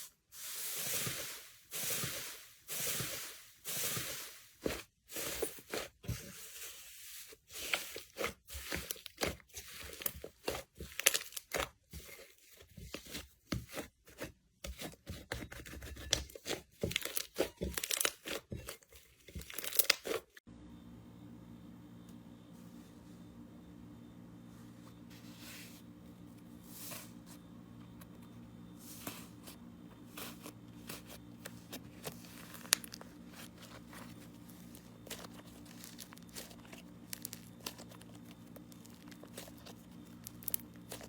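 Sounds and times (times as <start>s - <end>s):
slime crackling and popping: 17.0s - 18.4s, 19.4s - 20.2s, 34.5s - 41.0s.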